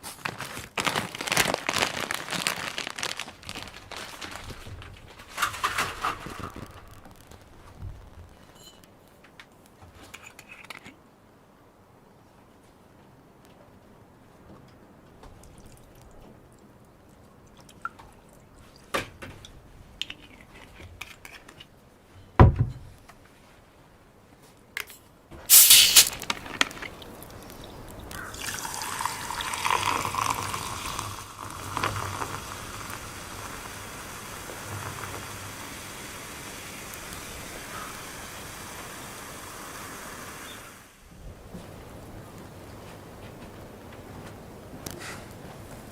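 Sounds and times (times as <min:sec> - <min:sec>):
hiss of liquid: 0:25.5 - 0:41.0.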